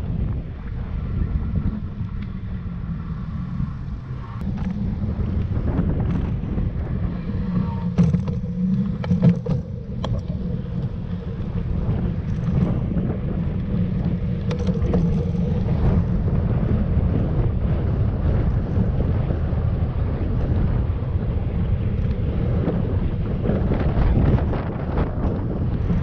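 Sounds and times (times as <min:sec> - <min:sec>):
wind buffeting microphone: 0:00.0 - 0:26.0
faint clicks: 0:07.4 - 0:12.8.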